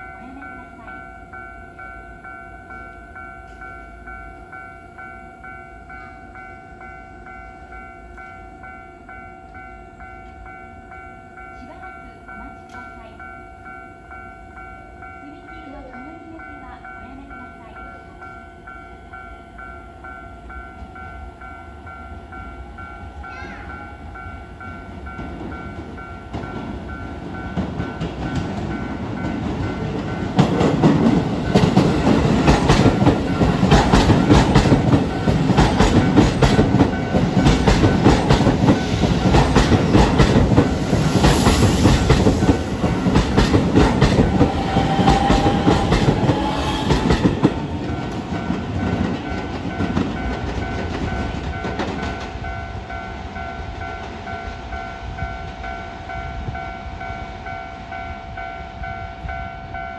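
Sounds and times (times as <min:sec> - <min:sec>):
level crossing warning bell: 0:00.0 - 0:59.9
train wheels clattering over rail joints: 0:25.2 - 0:52.6.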